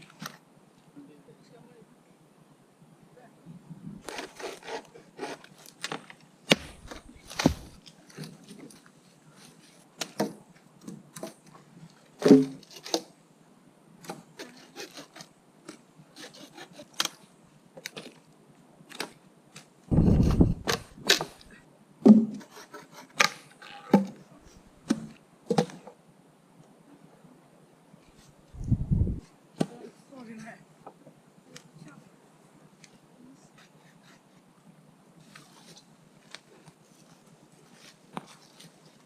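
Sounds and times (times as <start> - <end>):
wood cracking and knocking: 5.9 - 7.8
heavy low thump: 6.6 - 7.8, 19.9 - 20.8.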